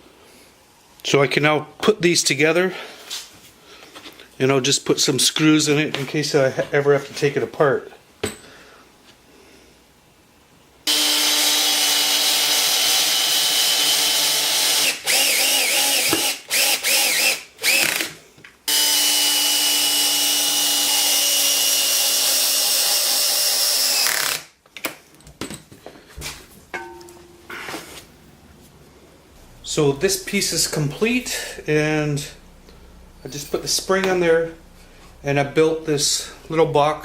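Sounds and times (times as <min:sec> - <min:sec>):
power drill driving screws: 0:10.9 - 0:24.5.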